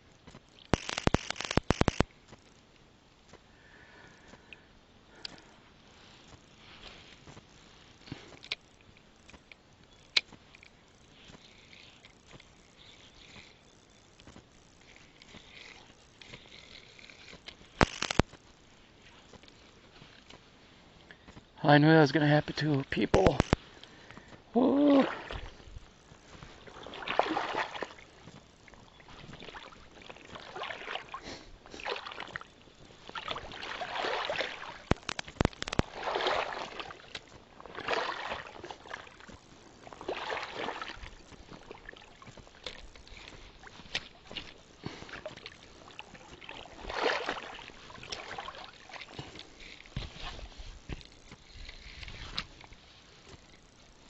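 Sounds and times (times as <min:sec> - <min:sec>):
sharp clicks: 0:00.3 - 0:02.6, 0:11.3 - 0:18.4, 0:22.9 - 0:24.3, 0:34.9 - 0:35.9
water splashing around a kayak: 0:22.9 - 0:54.0.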